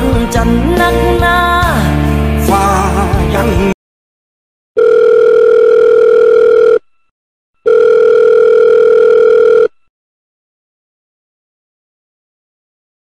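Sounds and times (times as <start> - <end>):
telephone ringback tone: 4.8 - 7.0, 7.6 - 9.9.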